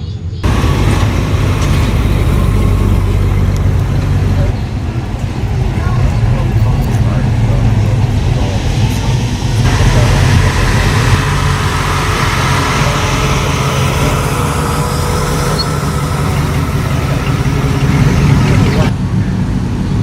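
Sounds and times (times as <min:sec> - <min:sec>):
loud steady hiss: 0:00.4 - 0:04.8, 0:09.2 - 0:18.9
car engine running: 0:00.4 - 0:18.9.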